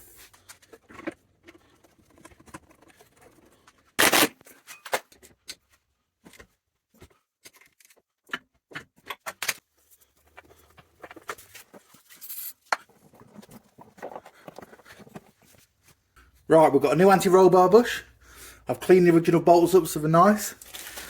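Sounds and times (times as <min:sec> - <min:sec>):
tools and parts clicking: 0:09.0 - 0:09.6.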